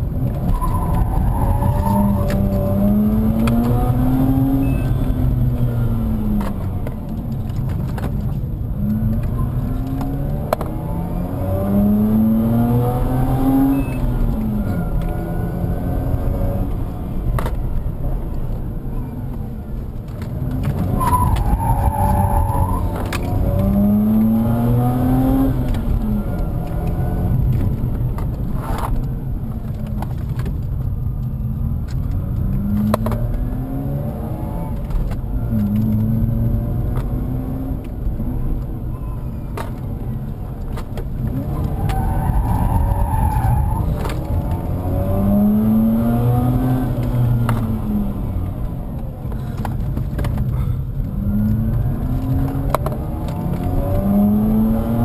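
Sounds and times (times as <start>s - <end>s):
rotary engine revving: 40.7s - 55.0s
tyres squealing: 41.3s - 44.9s.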